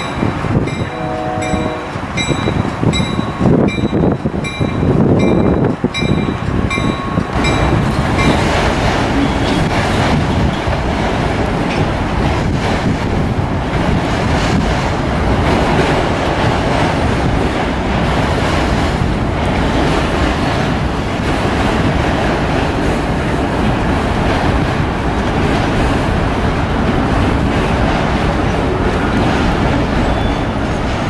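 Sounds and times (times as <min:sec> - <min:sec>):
locomotive bell ringing: 0:00.0 - 0:10.0, 0:28.4 - 0:31.0
freight cars rumbling on rails: 0:00.0 - 0:31.0.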